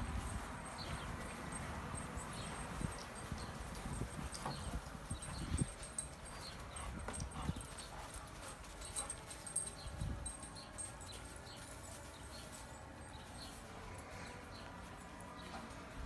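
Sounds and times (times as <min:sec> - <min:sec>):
dogs scuffling: 0:00.0 - 0:16.0
paws clicking: 0:00.2 - 0:12.6.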